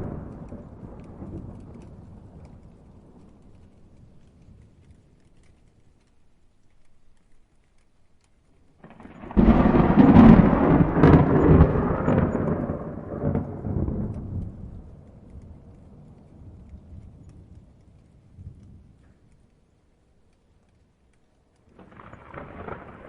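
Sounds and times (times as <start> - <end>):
thunderclap rumbling: 0.0 - 5.3, 8.8 - 19.4, 21.7 - 23.0.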